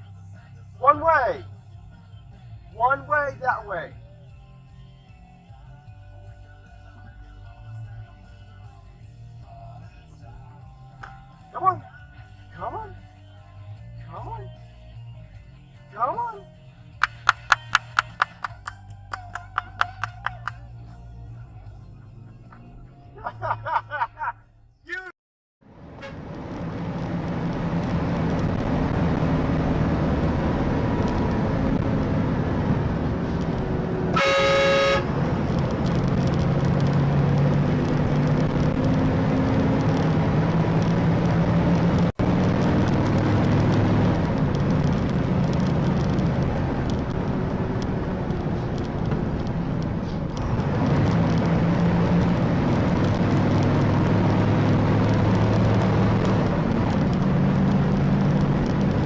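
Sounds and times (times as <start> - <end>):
car engine and road noise: 0.0 - 24.8, 25.6 - 59.0
car horn honking: 25.9 - 26.3, 34.1 - 35.2.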